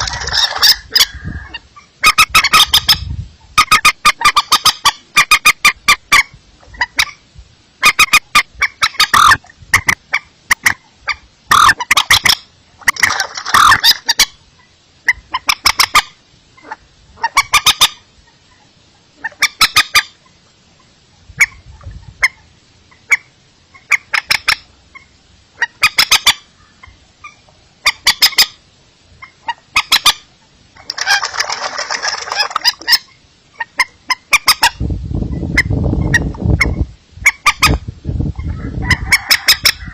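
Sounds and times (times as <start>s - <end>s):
rail bird calling in rapid notes: 7.8s - 10.8s, 11.5s - 14.4s, 29.2s - 34.8s.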